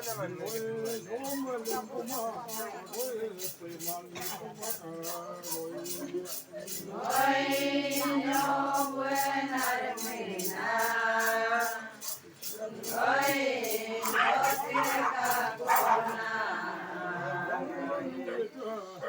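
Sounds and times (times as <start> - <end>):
voices chanting in held notes: 6.7 - 18.6.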